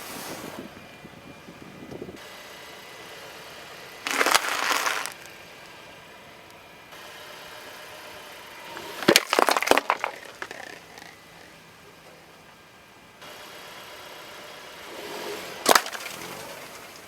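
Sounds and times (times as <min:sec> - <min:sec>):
brittle objects crushed under tyre: 0:04.1 - 0:05.4, 0:08.8 - 0:11.5, 0:15.7 - 0:17.0.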